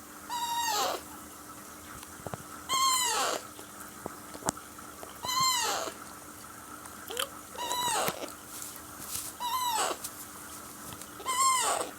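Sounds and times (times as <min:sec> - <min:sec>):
parakeet chick hoarse calls: 0:00.3 - 0:01.0, 0:02.7 - 0:03.5, 0:05.2 - 0:06.0, 0:07.1 - 0:08.3, 0:09.4 - 0:10.0, 0:11.2 - 0:11.9.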